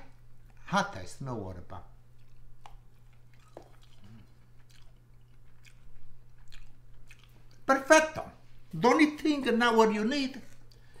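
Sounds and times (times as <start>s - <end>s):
steady low hum: 0.0s - 11.0s
person chewing food: 2.0s - 7.7s, 10.4s - 11.0s.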